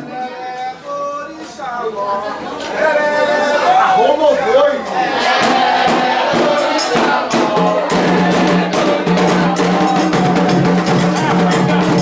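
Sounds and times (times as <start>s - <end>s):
singing: 0.0s - 12.0s
drums: 5.2s - 12.0s.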